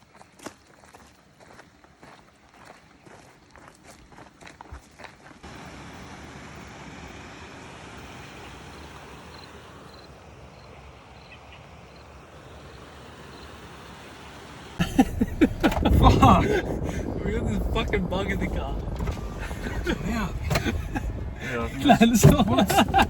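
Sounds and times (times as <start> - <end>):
loud knocks: 14.8 - 23.0.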